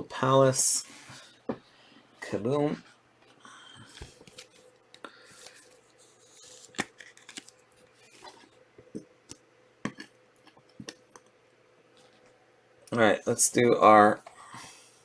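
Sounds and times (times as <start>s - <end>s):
paper and plastic rustling: 3.8s - 8.6s.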